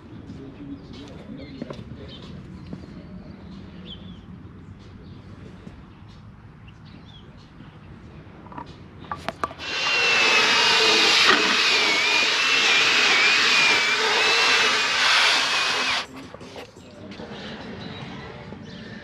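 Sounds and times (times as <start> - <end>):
extractor motor whining: 9.2 - 16.2.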